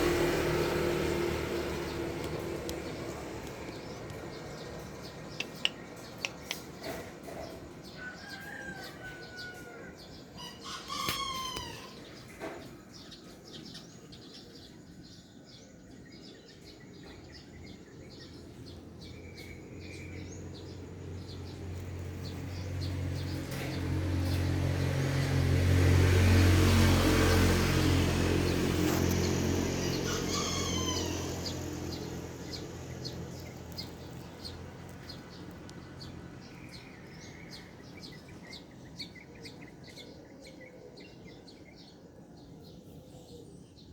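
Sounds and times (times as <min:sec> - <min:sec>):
low engine hum: 0:00.0 - 0:08.0, 0:17.0 - 0:39.8
faint bird chirping: 0:01.6 - 0:23.7
chicken calling: 0:29.4 - 0:32.1.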